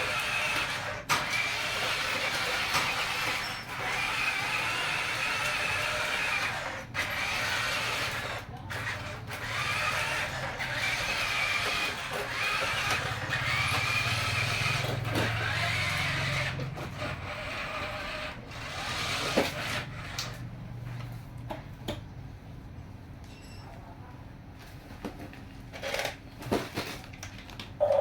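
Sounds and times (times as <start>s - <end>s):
toy electric motor whining: 0.0s - 20.4s.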